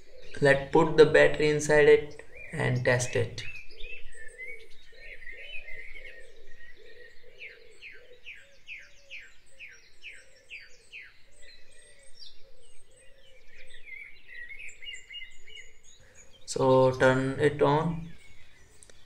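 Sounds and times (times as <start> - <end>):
softer lower bird chirping: 0.0 - 19.0.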